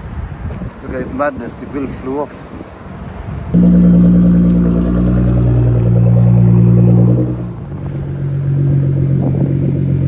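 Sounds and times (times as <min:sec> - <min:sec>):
car engine running: 0:03.6 - 0:10.0.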